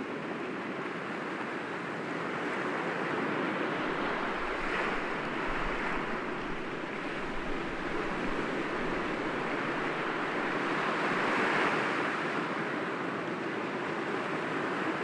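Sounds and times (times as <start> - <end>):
ocean waves breaking on rocks: 2.5 - 12.5.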